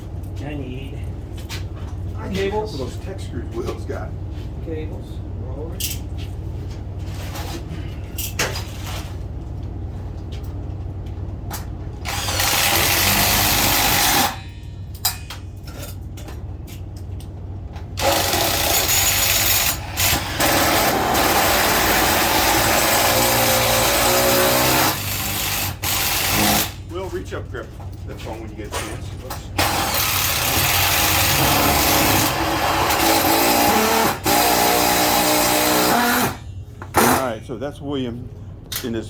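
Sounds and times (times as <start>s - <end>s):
power drill running: 12.0s - 14.4s, 18.0s - 26.8s, 29.6s - 36.4s.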